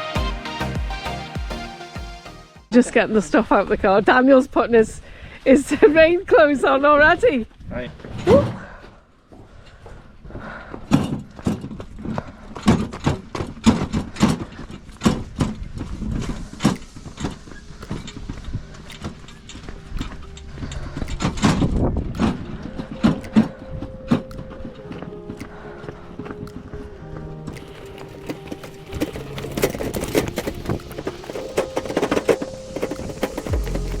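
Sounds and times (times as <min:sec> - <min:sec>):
steady musical tones: 0:16.0 - 0:34.0
sharp knocks and clatter: 0:27.5 - 0:34.0.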